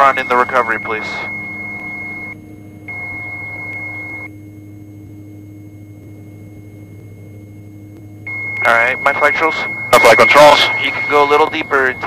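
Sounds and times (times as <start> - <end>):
stall warning beep: 0.0 - 4.3, 8.3 - 12.0.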